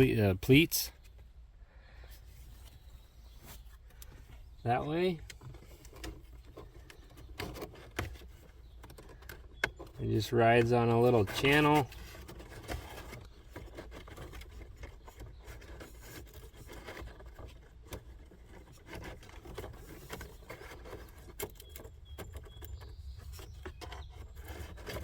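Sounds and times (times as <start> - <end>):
plastic filter frame scraping: 2.0 - 25.0.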